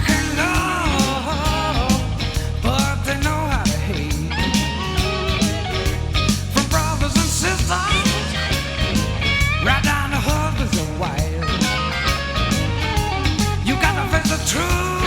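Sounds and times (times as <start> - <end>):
bass guitar: 0.0 - 15.0
steady drum beat: 0.0 - 15.0
lead guitar bending notes: 4.2 - 14.2.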